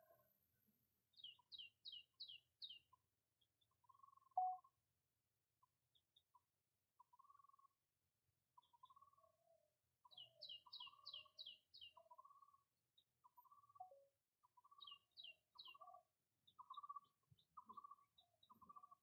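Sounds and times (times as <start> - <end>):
high bird chirps: 10.1 - 12.3.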